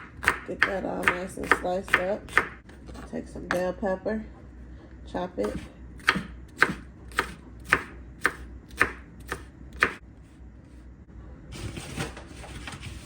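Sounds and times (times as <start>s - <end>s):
knife chopping pepper: 0.0s - 2.6s, 5.4s - 10.0s.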